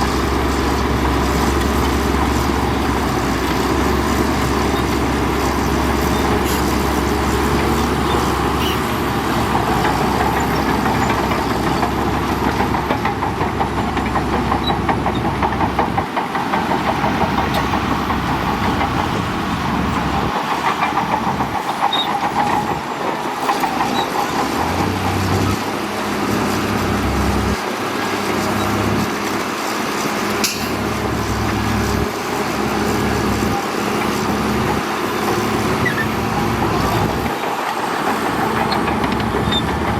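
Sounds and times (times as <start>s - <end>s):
heavy diesel machinery engine: 0.0s - 39.9s
continuous rattle: 9.2s - 39.9s.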